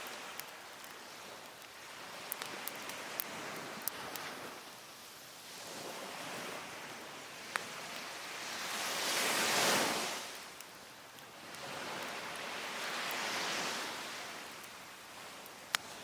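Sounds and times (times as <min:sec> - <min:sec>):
wood fire popping: 0:00.0 - 0:04.4, 0:14.4 - 0:16.0
sea waves washing up beach: 0:00.0 - 0:16.0.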